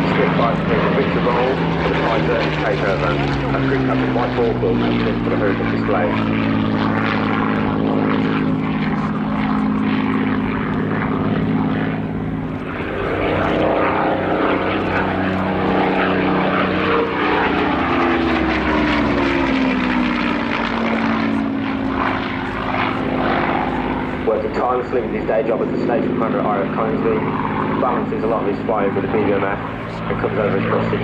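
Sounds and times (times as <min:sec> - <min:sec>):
propeller plane engine passing: 0:00.0 - 0:31.0.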